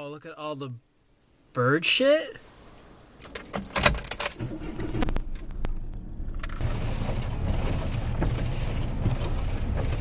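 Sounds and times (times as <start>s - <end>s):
car engine starting and idling: 3.2s - 10.0s.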